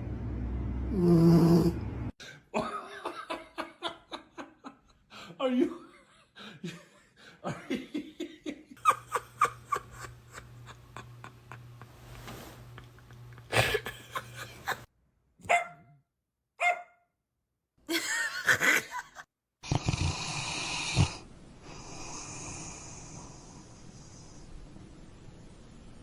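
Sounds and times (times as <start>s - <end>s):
dog barking: 15.4s - 16.0s, 16.6s - 17.0s.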